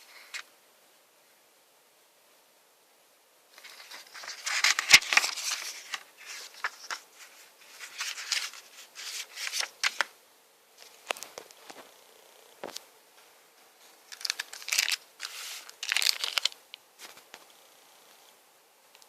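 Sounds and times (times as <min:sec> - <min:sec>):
packaging crinkling and rustling: 0:03.6 - 0:10.1, 0:14.1 - 0:17.4.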